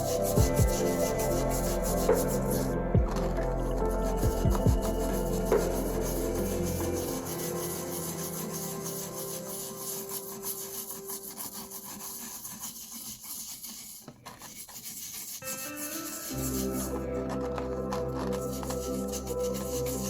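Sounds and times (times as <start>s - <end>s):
background music: 0.0s - 12.3s, 15.4s - 20.0s
rubbing on metal buckle: 5.0s - 17.0s.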